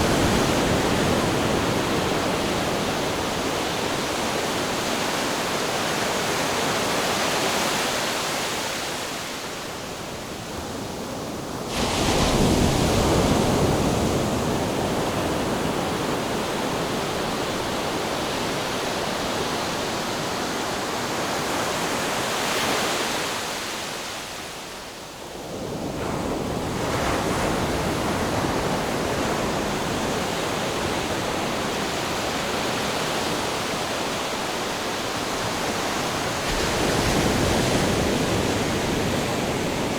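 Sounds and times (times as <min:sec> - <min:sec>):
waves breaking: 0:26.6 - 0:39.9.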